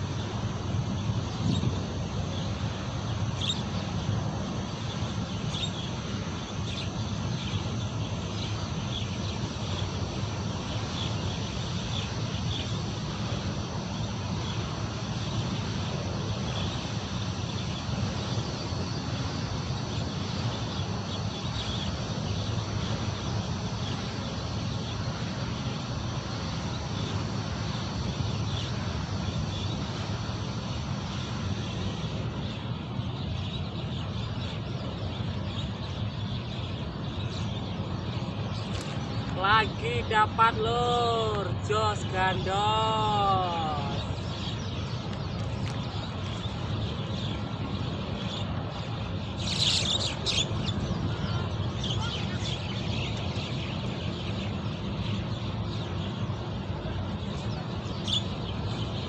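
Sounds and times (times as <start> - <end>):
wind rumble on microphone: 0.0 - 3.2.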